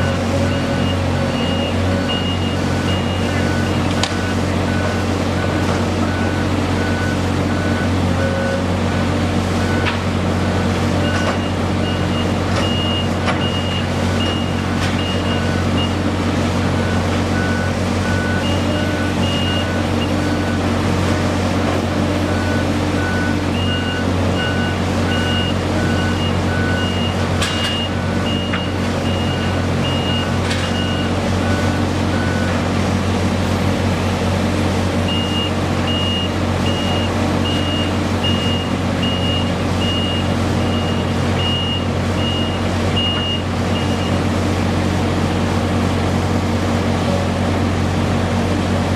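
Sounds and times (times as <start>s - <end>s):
reversing alarms beeping: 0.0s - 8.8s, 10.5s - 16.2s, 16.8s - 20.8s, 22.1s - 32.7s, 35.0s - 44.2s
construction machinery diesel drone: 0.0s - 48.9s.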